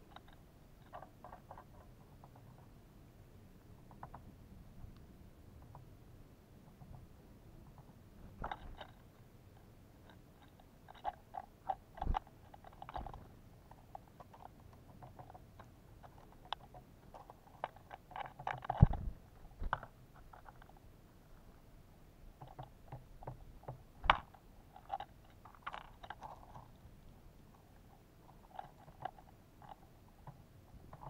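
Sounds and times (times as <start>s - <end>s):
birds pecking at a feeder: 6.6s - 21.5s, 22.3s - 31.0s.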